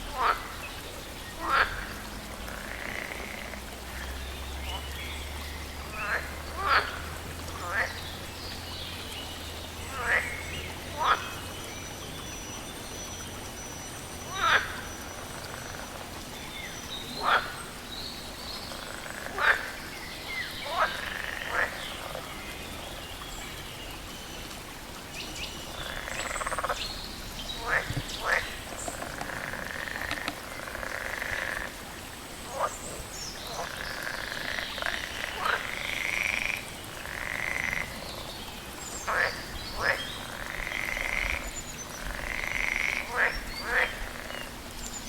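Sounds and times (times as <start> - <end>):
frog chorus: 0.1 - 0.6, 1.4 - 4.9, 5.8 - 8.0, 9.9 - 11.4, 14.3 - 16.0, 17.2 - 17.6, 18.7 - 19.8, 20.4 - 22.3, 25.7 - 26.8, 27.6 - 31.8, 32.4 - 38.3, 39.0 - 44.5.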